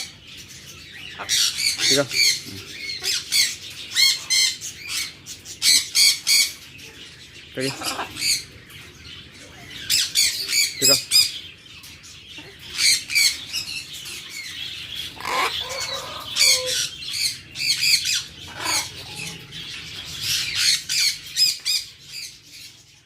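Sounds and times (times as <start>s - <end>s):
bird chick squawking: 14.9s - 19.6s.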